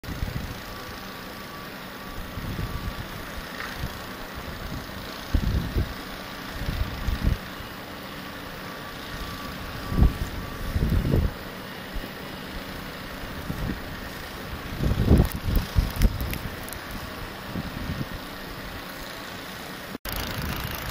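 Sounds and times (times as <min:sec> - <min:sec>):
blizzard wind rushing: 0:02.1 - 0:18.9
wind buffeting microphone: 0:02.2 - 0:06.0, 0:06.6 - 0:07.5, 0:09.5 - 0:11.4, 0:13.3 - 0:18.3.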